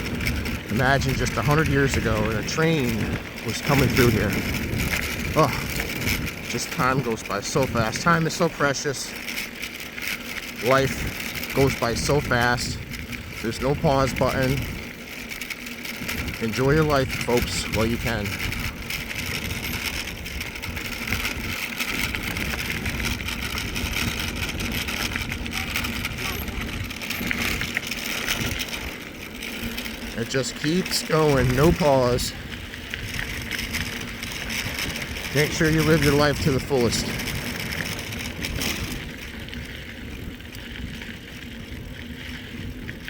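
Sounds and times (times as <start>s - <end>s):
wind on microphone: 0.0s - 7.0s, 16.0s - 28.9s
bike tyres on dirt: 0.0s - 43.0s.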